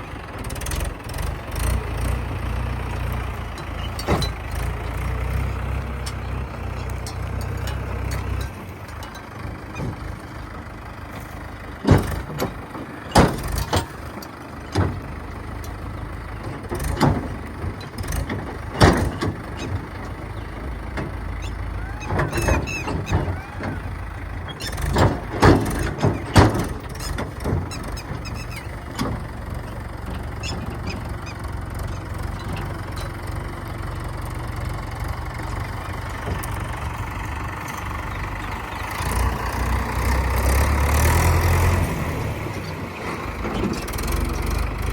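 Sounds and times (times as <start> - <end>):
diesel engine low rumble: 0.0 - 44.9
metal clanks and knocks: 0.4 - 44.9.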